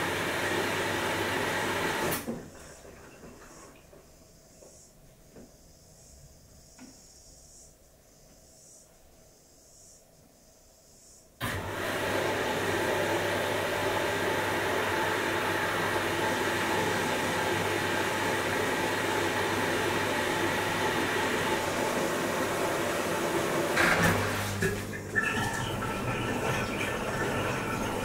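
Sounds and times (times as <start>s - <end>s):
washing machine running: 0.0s - 3.9s, 11.4s - 28.0s.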